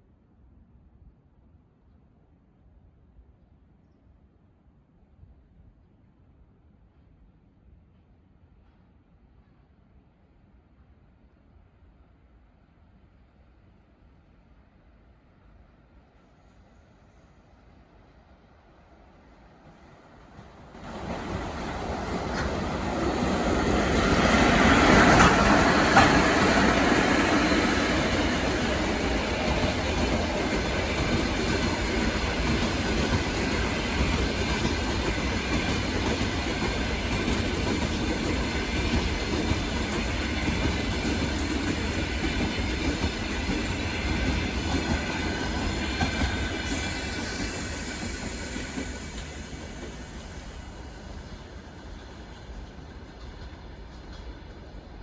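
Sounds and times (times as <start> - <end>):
electric locomotive passing: 18.4 - 55.0
train wheels on rails: 19.4 - 55.0.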